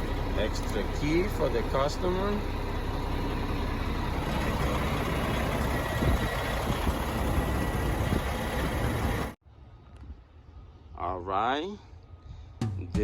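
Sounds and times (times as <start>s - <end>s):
diesel truck engine idling: 0.0s - 9.4s.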